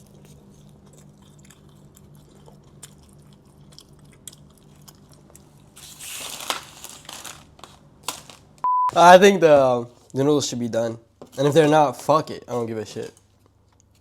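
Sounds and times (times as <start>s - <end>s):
person chewing: 0.0s - 6.6s.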